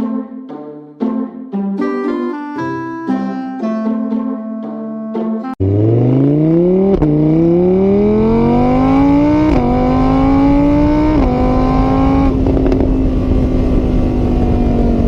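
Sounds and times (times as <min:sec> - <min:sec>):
car engine accelerating: 0:05.6 - 0:15.0.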